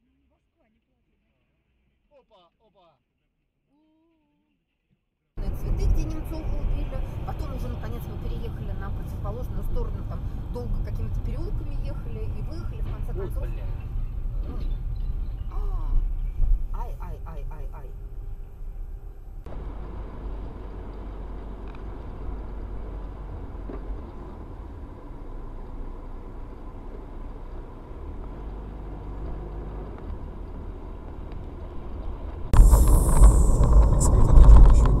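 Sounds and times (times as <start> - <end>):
loud vehicle noise: 5.4 - 16.2, 17.9 - 35.0
car road and engine rumble: 5.4 - 35.0.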